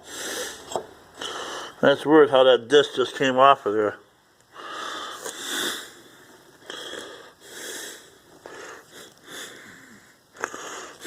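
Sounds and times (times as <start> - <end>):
man breathing heavily: 0.0 - 1.8, 4.5 - 11.0.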